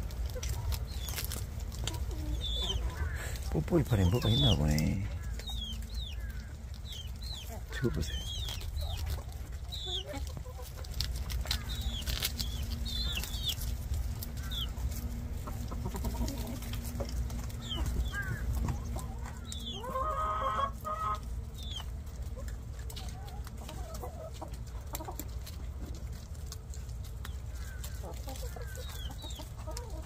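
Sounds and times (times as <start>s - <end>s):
steady low rumble: 0.0s - 19.8s
chickens clucking: 0.0s - 30.0s
drawn-out hen call: 0.0s - 30.0s.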